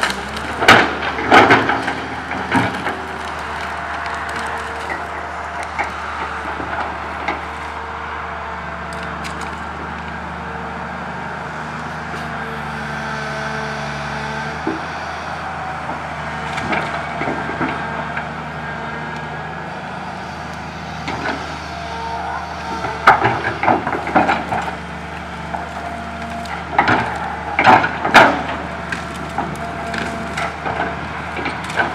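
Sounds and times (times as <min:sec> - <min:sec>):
branches cracking and snapping: 0:00.0 - 0:08.0, 0:08.8 - 0:10.3, 0:11.7 - 0:31.9
excavator diesel engine running: 0:00.0 - 0:31.9.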